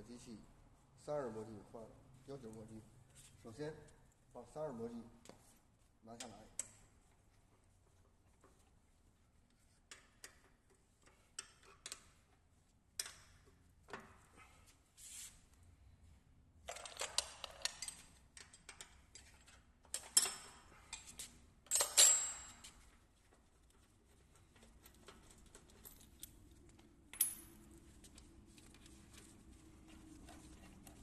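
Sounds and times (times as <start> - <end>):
metal tools clicking and clinking: 16.7 - 22.8.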